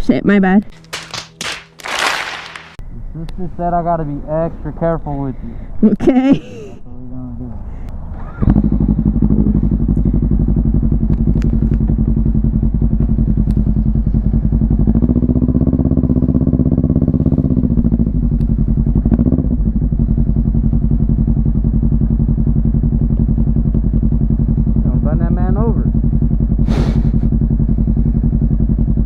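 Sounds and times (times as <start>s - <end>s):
motorcycle engine running: 8.1s - 29.0s.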